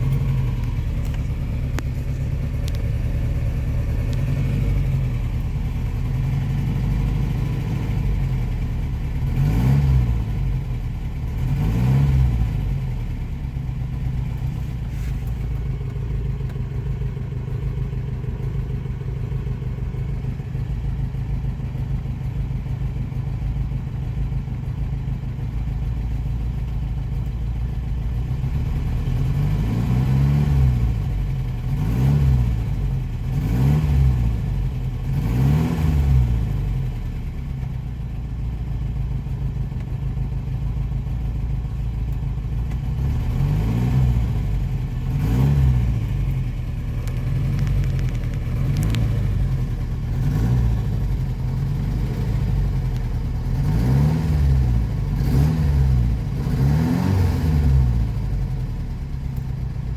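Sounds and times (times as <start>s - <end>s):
car engine idling: 0.0s - 59.9s
engine revving blips: 53.5s - 58.0s.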